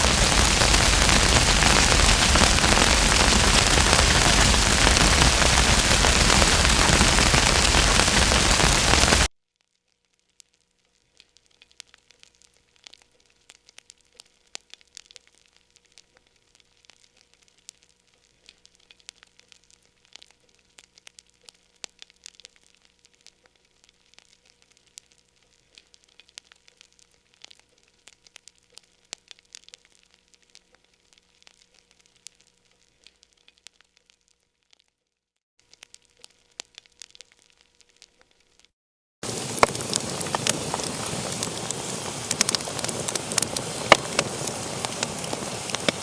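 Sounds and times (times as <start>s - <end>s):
wood fire crackling: 0.0s - 9.3s, 39.2s - 46.0s.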